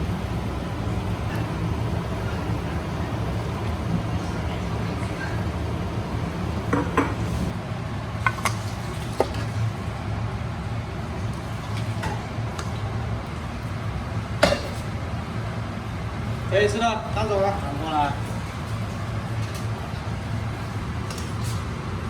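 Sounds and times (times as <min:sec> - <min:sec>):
utensils clinking on pots and dishes: 0:00.0 - 0:07.6, 0:08.2 - 0:09.8, 0:14.4 - 0:14.9
steady low hum: 0:00.0 - 0:22.0.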